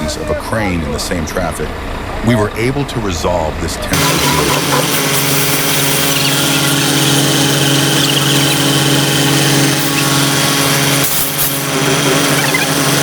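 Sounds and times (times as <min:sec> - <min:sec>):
heavy vehicle engine running: 0:00.0 - 0:13.0.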